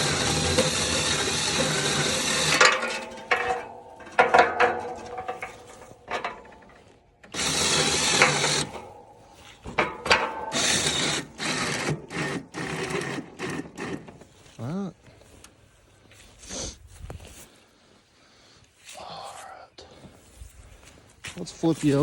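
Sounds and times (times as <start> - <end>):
winch motor running: 0.0 - 6.7, 7.3 - 14.2
metal hook and cable clanking: 0.0 - 12.3.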